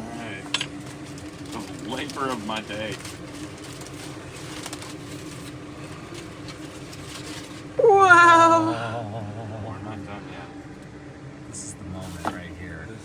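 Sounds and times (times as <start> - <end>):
person exclaiming wow: 7.8 - 9.0.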